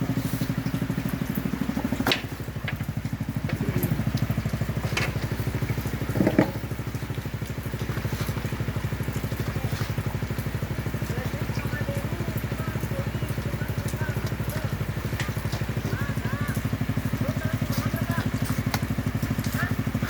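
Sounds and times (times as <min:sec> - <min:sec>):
small engine pulsing: 0:00.0 - 0:20.0
sharp clicks and knocks: 0:00.7 - 0:07.6.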